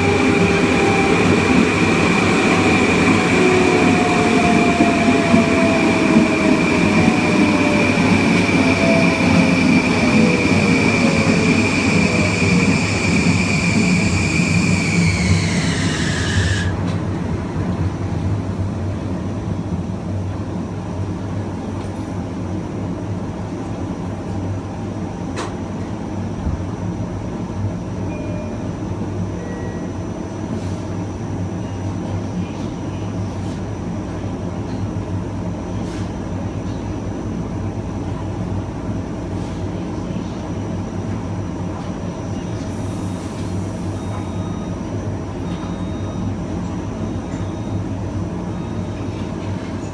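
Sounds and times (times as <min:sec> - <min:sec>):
train rolling rumble: 0:00.0 - 0:49.9
faint high steady tone: 0:28.1 - 0:28.8.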